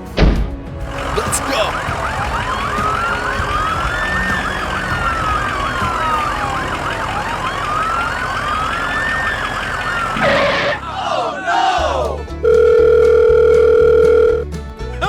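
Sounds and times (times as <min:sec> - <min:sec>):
fast yelping siren: 0:00.9 - 0:11.3
wailing siren: 0:00.9 - 0:11.7.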